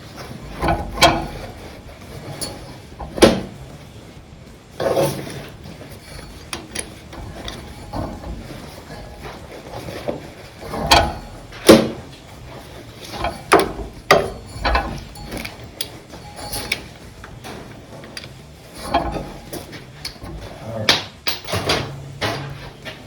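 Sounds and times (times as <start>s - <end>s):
sharp metal clanks: 10.6s - 23.0s.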